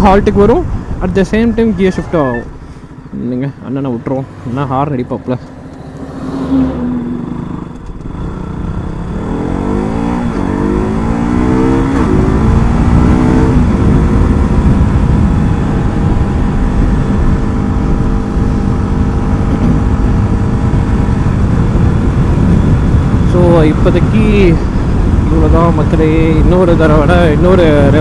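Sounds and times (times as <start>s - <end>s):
wind and road noise: 0.0s - 28.0s
motorcycle engine accelerating: 4.6s - 23.8s.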